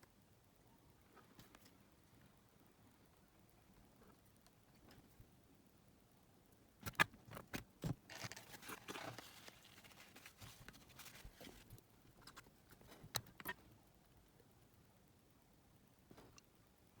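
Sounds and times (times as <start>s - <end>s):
rustling: 7.8s - 13.5s.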